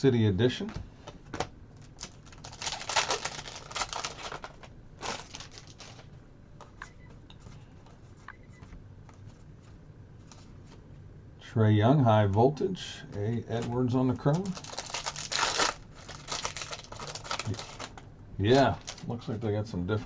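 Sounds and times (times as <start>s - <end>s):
cards rustling and clicking: 0.7s - 8.2s, 13.2s - 20.0s.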